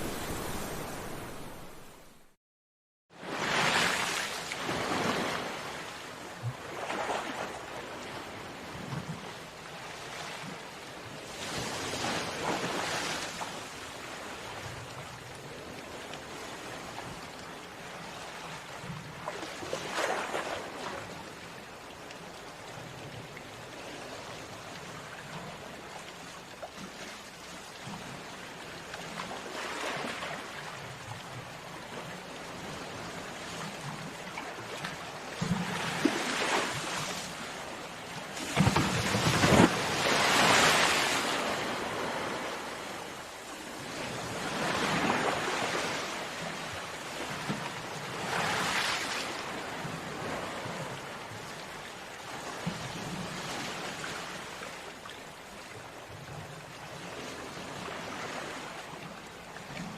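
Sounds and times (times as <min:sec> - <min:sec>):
sea waves crashing on beach: 0:00.0 - 0:02.3, 0:03.2 - 0:08.8, 0:11.2 - 0:14.8, 0:31.6 - 0:51.6.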